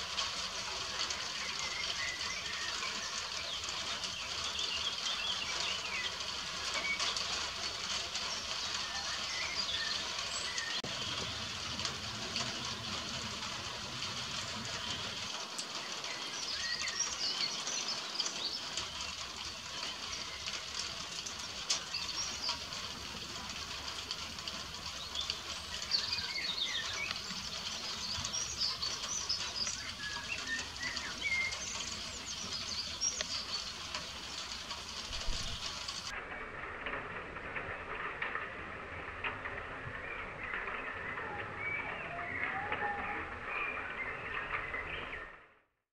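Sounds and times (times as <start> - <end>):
rain hissing: 0.0 - 45.2
birds chirping and calling: 1.0 - 10.8, 14.4 - 36.1.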